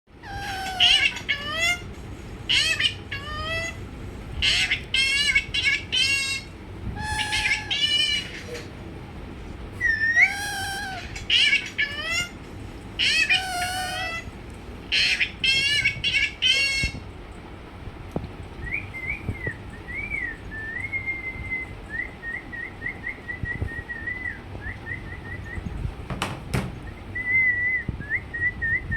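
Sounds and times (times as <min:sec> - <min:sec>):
parrot meow-like calls: 0:00.2 - 0:01.9, 0:02.5 - 0:03.8, 0:04.4 - 0:08.7, 0:09.8 - 0:12.4, 0:13.0 - 0:14.3
parrot whistles and trills: 0:00.2 - 0:01.9, 0:02.5 - 0:03.8, 0:04.4 - 0:08.7, 0:09.8 - 0:12.4, 0:13.0 - 0:14.3, 0:18.6 - 0:25.8.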